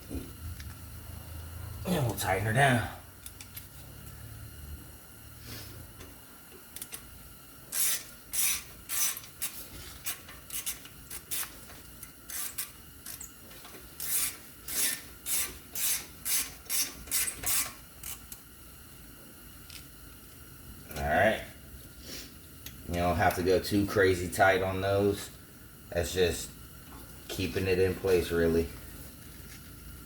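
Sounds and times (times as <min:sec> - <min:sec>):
ratchet rasping clicks: 0:06.8 - 0:07.0, 0:07.7 - 0:13.4, 0:14.0 - 0:18.4.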